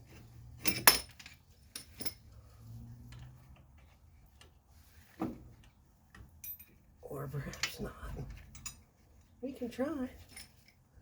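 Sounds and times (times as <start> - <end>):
metal tools clinking: 0.6 - 2.4, 6.4 - 7.8, 10.2 - 10.8.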